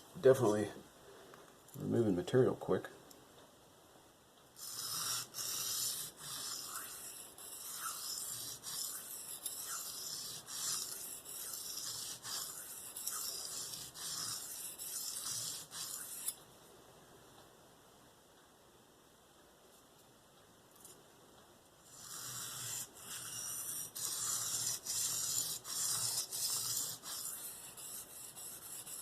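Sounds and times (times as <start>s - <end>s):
knife scraping on sharpening stone: 4.6s - 16.4s, 21.9s - 29.0s.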